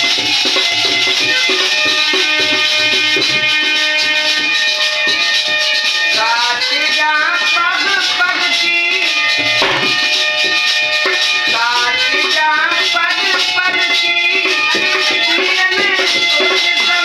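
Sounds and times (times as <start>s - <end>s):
ornamented instrumental melody: 0.0s - 17.0s
rattling hand percussion: 0.0s - 17.0s
light drumming: 9.1s - 17.0s.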